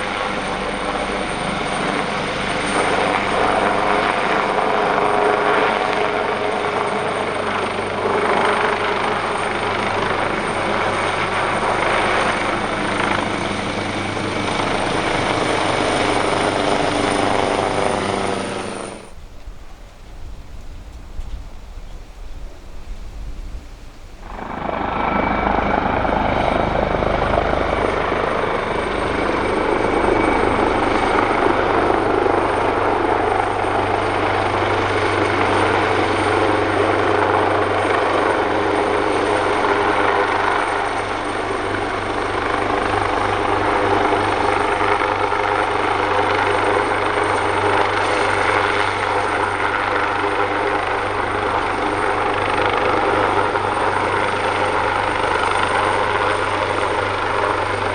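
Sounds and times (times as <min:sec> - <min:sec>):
helicopter running: 0:00.0 - 0:57.9
high turbine whine: 0:12.5 - 0:37.3.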